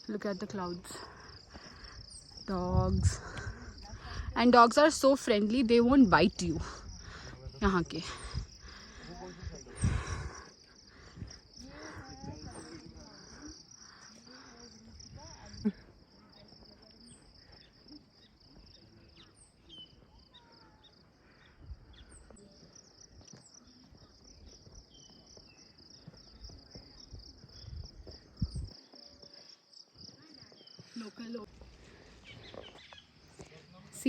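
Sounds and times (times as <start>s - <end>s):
insects chirping: 0.0s - 34.0s
birds chirping: 16.3s - 33.8s.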